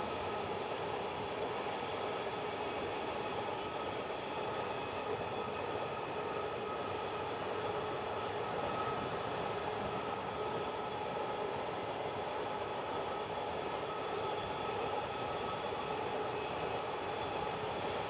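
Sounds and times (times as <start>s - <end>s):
freight train rolling past: 3.2s - 12.5s.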